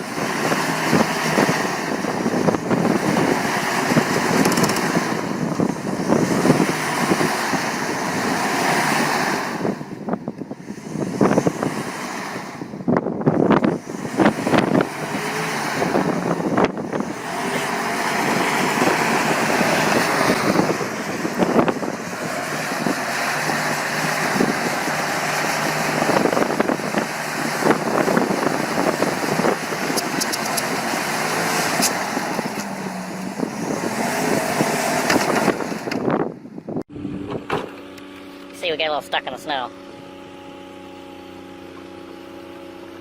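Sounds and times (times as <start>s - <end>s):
vehicle engine running: 0.0s - 43.0s.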